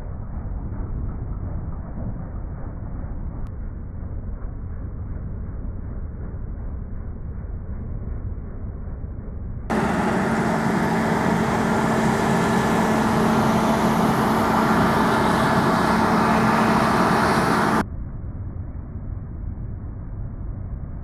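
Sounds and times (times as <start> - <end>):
combine harvester running: 9.7 - 17.8.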